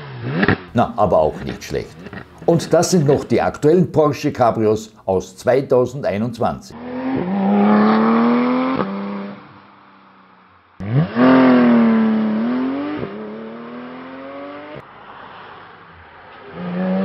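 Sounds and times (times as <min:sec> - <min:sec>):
sports car engine accelerating: 0:00.0 - 0:00.8, 0:01.4 - 0:03.2, 0:06.7 - 0:17.0.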